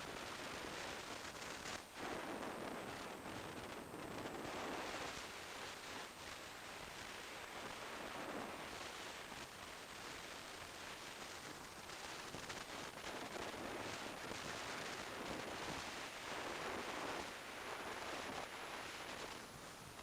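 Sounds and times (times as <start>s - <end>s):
wind rush over microphone: 0.1s - 20.0s.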